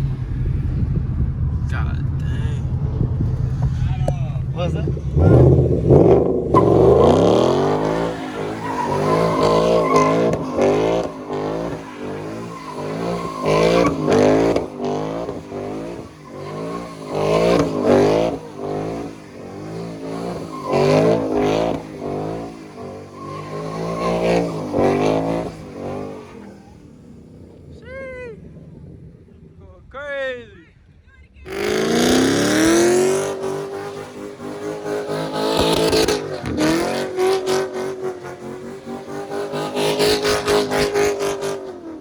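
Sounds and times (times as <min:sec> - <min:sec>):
car engine revving hard: 0:00.0 - 0:27.7, 0:31.5 - 0:42.0
tyres squealing: 0:06.5 - 0:26.7.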